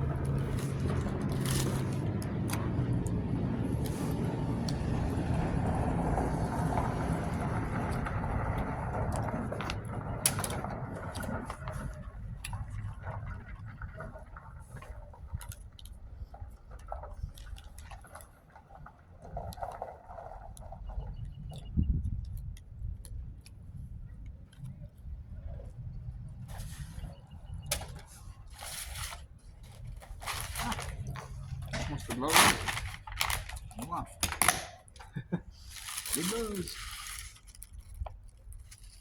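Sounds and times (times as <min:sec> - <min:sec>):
vehicle passing: 0:00.0 - 0:11.4.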